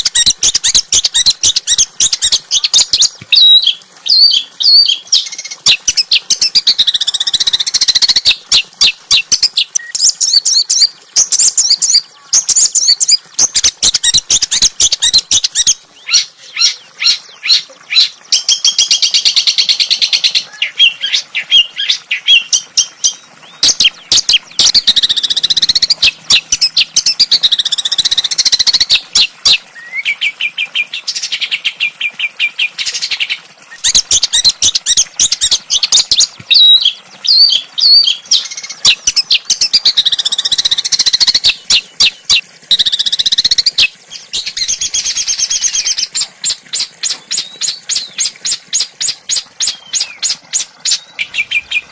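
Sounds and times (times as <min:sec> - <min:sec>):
songbird chips and trills: 0:00.0 - 0:19.6.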